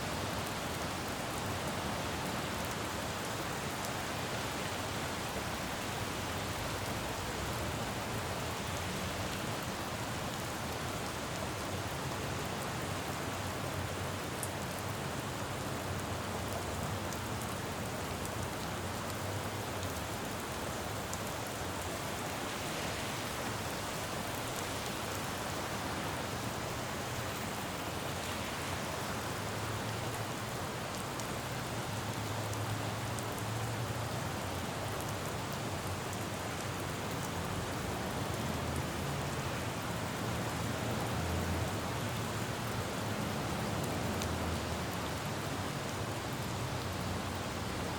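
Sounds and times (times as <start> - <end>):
rain pattering on road: 0.1 - 47.9.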